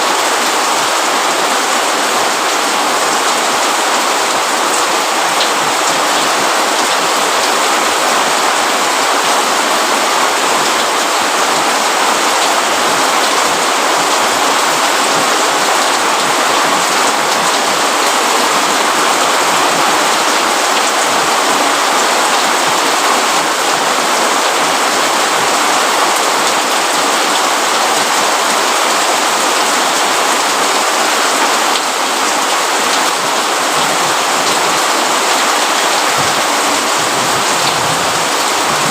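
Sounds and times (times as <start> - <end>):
rain on a roof and leaves: 0.0 - 38.9.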